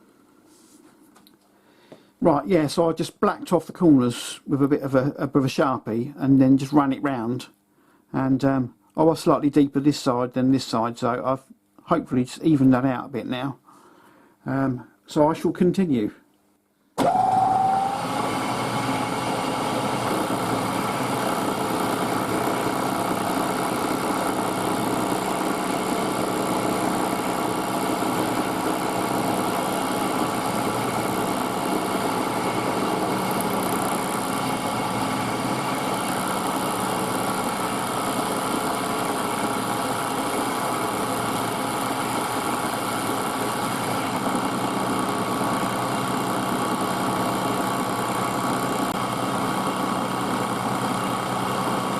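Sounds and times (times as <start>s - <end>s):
milling machine cutting metal: 17.0s - 51.9s.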